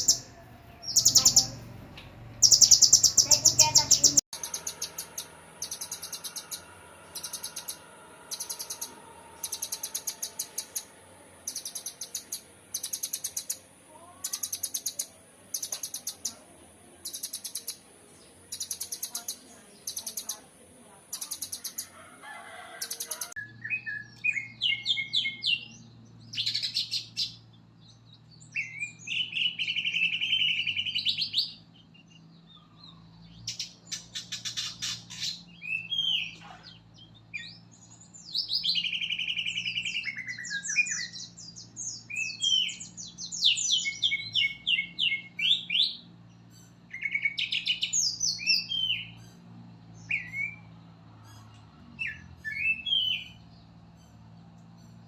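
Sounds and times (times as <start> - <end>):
steady low hum: 0.0 - 22.2
songbird singing: 0.0 - 55.0.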